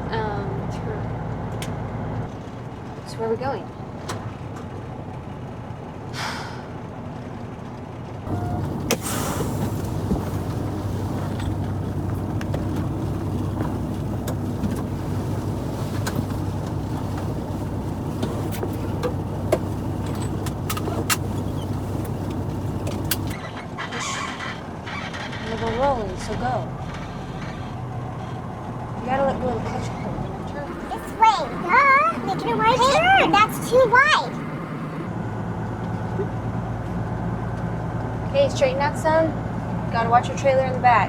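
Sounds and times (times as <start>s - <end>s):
diesel truck engine running: 0.0s - 41.0s
brief air hiss: 6.2s - 6.7s, 8.3s - 11.1s
clicks and rattles: 9.7s - 23.4s.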